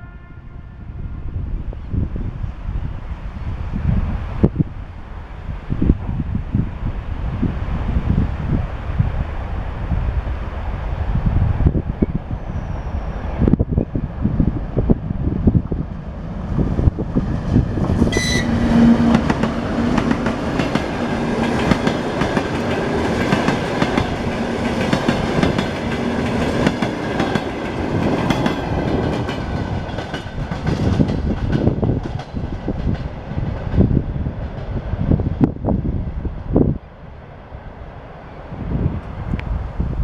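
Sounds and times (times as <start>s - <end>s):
high squeal: 12.0s - 13.4s, 18.1s - 19.0s
train wheels clicking: 17.0s - 34.8s.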